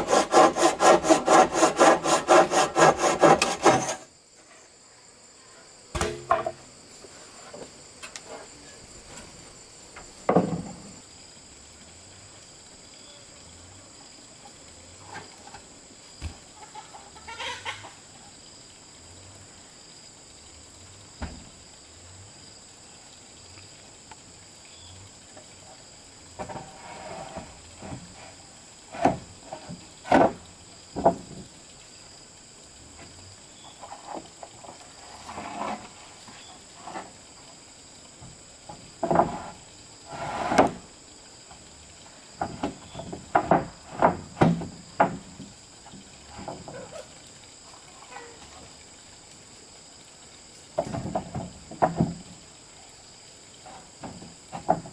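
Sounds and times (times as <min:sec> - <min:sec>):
hand saw on wood: 0:00.0 - 0:04.1, 0:40.1 - 0:40.8
chickens clucking: 0:16.6 - 0:18.0.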